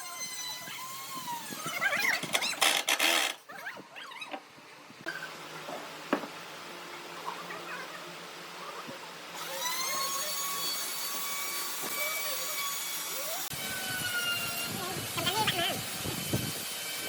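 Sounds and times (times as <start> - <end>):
power tool motor whining: 0.0 - 3.4.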